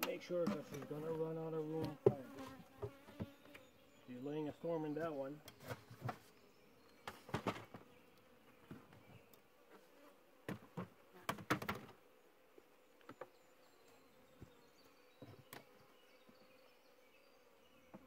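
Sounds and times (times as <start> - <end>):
knocks of hive frames handled: 0.0 - 3.7, 7.0 - 7.9, 10.4 - 12.0
bees buzzing: 0.2 - 18.0.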